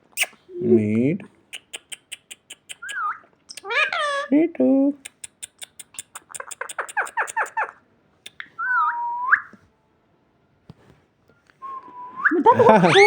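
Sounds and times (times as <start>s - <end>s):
parakeet chattering chirps: 1.5s - 4.3s, 5.1s - 8.5s, 12.8s - 13.0s.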